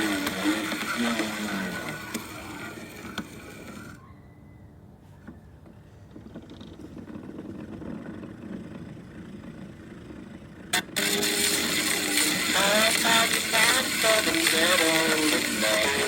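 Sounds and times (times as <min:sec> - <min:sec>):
faint low rumbling: 0:01.7 - 0:11.0.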